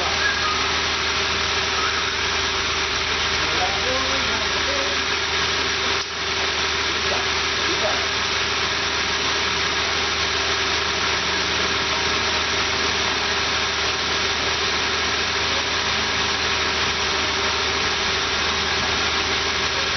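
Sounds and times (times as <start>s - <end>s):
car engine idling: 0.0s - 19.9s.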